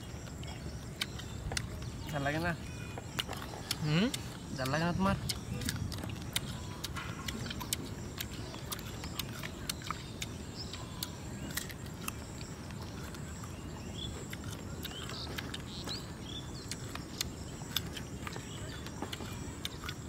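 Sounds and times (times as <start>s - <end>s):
crunchy chewing: 0.0s - 20.0s.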